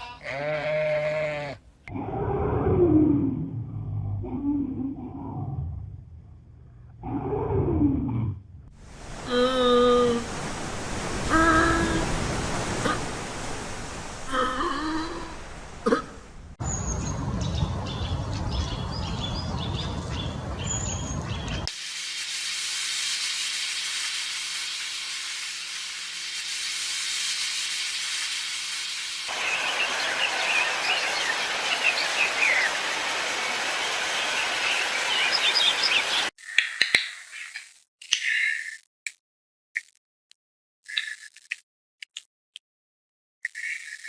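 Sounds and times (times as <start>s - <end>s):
small birds chirping: 16.6s - 21.7s, 29.3s - 38.8s.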